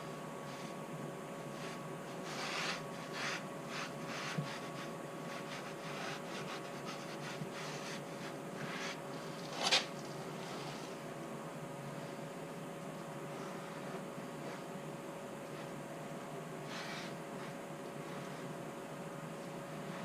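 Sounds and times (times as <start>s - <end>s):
steady background hum: 0.0s - 20.0s
rag rubbing on concrete floor: 1.5s - 11.0s.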